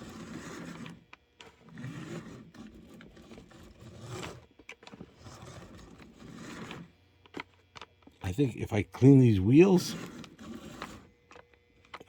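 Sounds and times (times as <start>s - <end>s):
model train motor scraping: 0.0s - 7.4s, 9.0s - 12.0s.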